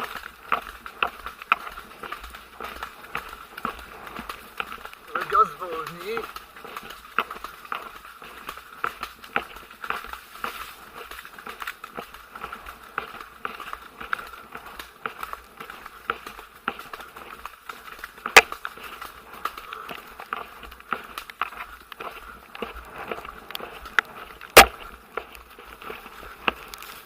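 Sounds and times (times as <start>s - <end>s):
hooves clicking on trail: 0.0s - 27.0s.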